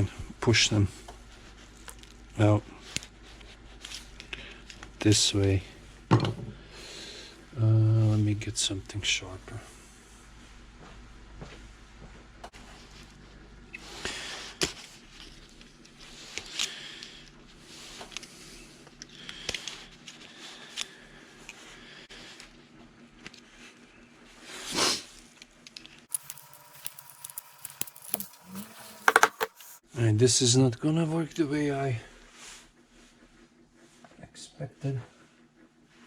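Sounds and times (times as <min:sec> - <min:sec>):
metal tools clicking and scraping: 0:26.1 - 0:29.8.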